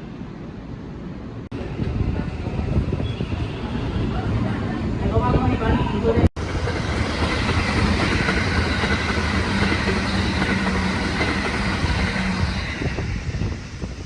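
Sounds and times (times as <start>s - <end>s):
electric train rumble: 6.4s - 14.0s
faint train whine: 6.4s - 14.0s.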